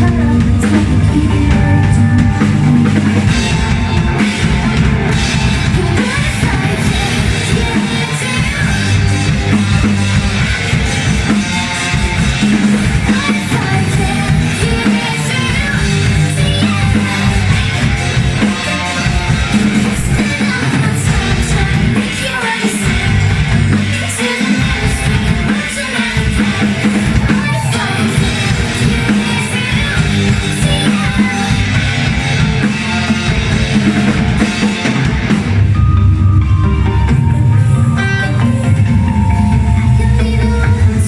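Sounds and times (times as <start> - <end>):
person singing: 0.0 - 4.4, 5.4 - 9.9, 12.7 - 32.1
rock band playing: 0.0 - 41.0.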